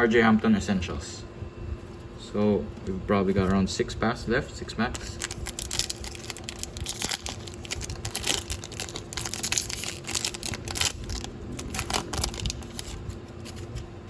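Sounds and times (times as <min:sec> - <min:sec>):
card pack wrapper tearing and crinkling: 0:04.9 - 0:13.8.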